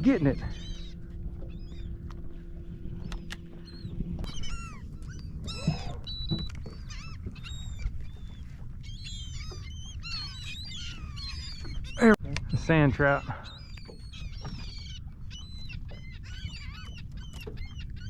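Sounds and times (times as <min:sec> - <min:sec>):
seabirds squawking: 0:00.0 - 0:18.0
steady low hum: 0:00.0 - 0:18.0
wind and water rumble: 0:00.0 - 0:18.0.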